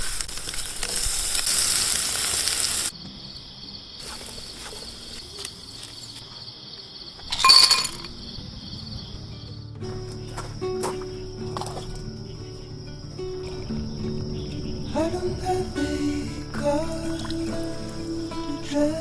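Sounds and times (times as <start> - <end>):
steak sizzling in a pan: 0.0 - 2.9
clinking: 7.2 - 8.2.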